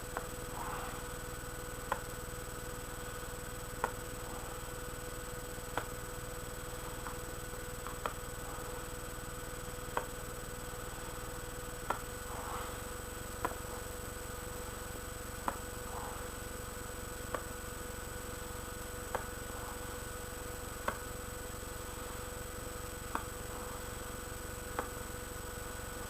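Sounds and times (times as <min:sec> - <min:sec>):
steady electrical hum: 0:00.0 - 0:26.0
sharp clicks: 0:01.8 - 0:02.2.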